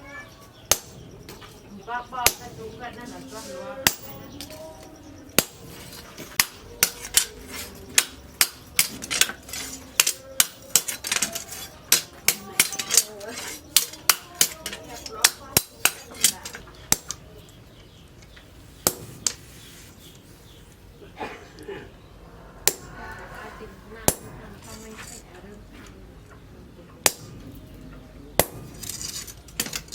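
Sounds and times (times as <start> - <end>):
hammer striking steel on anvil: 0.7 - 1.1, 3.8 - 4.6, 5.4 - 17.2, 22.6 - 23.0, 24.0 - 24.4, 27.0 - 27.4.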